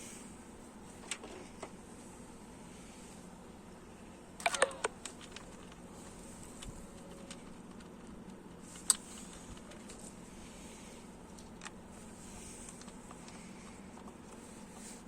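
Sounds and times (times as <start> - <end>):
sharp click: 4.4 - 5.2
clatter of small clicks: 4.4 - 10.0.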